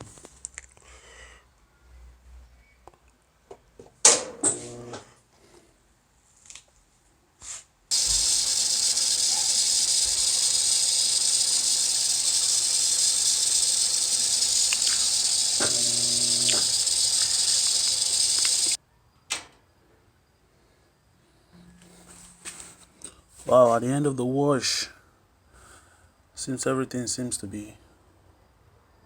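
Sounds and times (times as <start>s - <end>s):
faint clicks: 7.9s - 18.8s
water rushing into washer: 7.9s - 18.8s.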